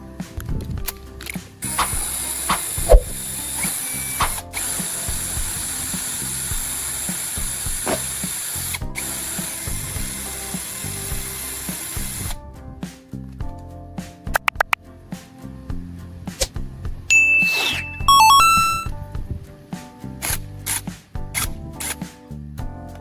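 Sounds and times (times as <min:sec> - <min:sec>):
high-pitched mechanical tool hiss: 0:01.6 - 0:12.3.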